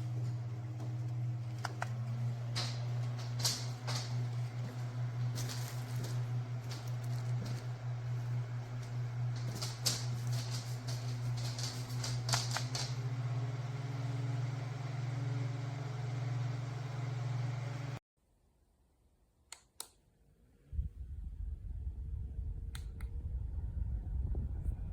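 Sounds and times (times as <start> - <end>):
handheld fan motor hum: 0.0 - 18.0.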